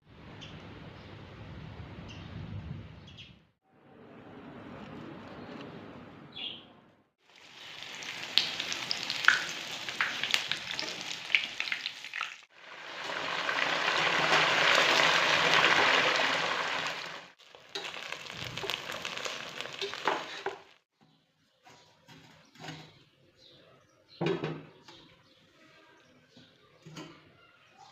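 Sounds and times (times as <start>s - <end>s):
food sizzling in hot oil: 7.2s - 20.8s
oil crackling and popping: 7.2s - 20.8s.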